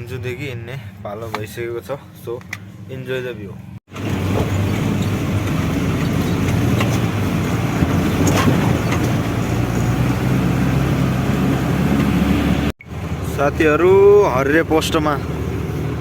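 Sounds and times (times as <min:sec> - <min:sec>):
road rumble: 0:00.0 - 0:16.0
truck engine running: 0:03.9 - 0:16.0.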